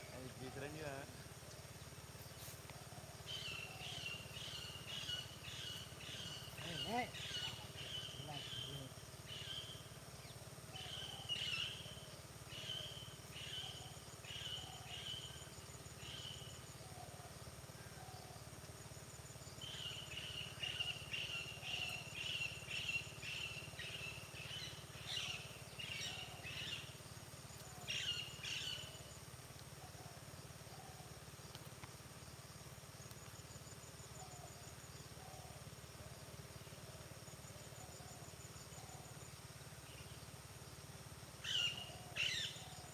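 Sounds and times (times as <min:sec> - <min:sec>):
birds chirping: 0:00.0 - 0:17.2, 0:19.6 - 0:29.3, 0:41.4 - 0:42.9.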